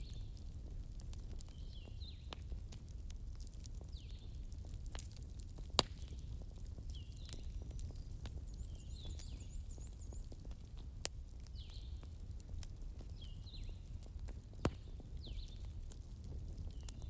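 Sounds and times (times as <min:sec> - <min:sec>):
small birds chirping: 0:00.0 - 0:00.4, 0:01.3 - 0:02.5, 0:03.7 - 0:04.4, 0:06.0 - 0:10.7, 0:11.4 - 0:12.2, 0:13.0 - 0:15.8, 0:16.6 - 0:17.0
campfire crackling and popping: 0:00.0 - 0:17.0.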